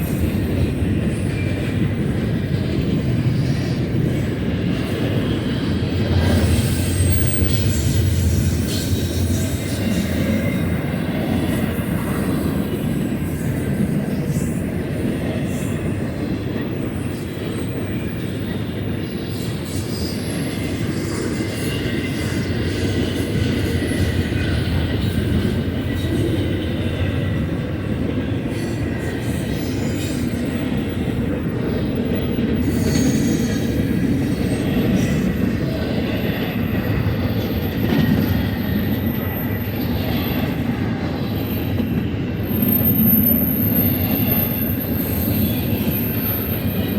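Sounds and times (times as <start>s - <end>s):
freight train cars rolling past: 0.0s - 46.9s
faint wheel squeal: 41.3s - 46.9s.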